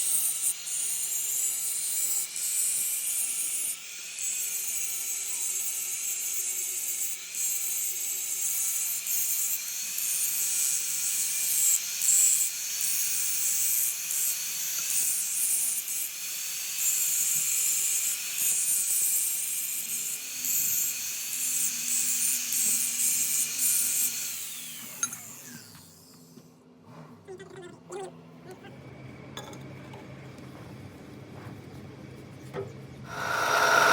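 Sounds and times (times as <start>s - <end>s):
power tool whining on metal: 0.0s - 26.4s, 33.1s - 33.9s
loud hiss: 33.1s - 33.9s.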